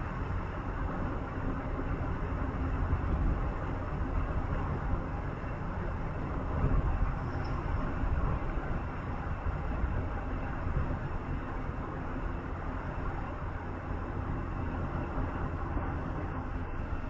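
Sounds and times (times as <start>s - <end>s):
vehicle ride rumble from inside: 0.0s - 17.0s.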